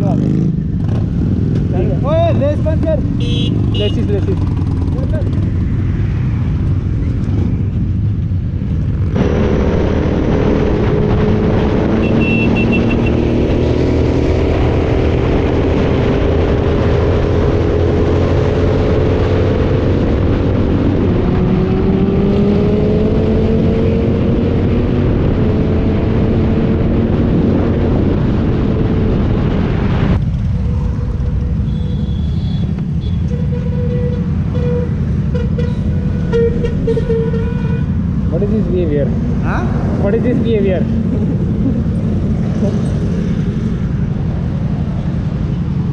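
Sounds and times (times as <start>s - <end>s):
motorcycle engines accelerating: 0.0s - 45.9s.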